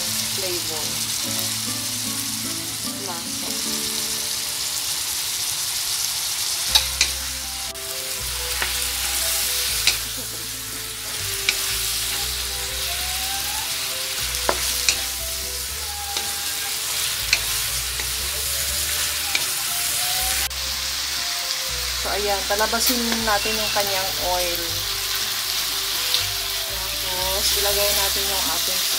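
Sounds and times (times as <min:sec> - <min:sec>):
chicken sizzling in a pan: 0:00.0 - 0:28.9
wooden spatula knocking on pan: 0:14.4 - 0:15.1.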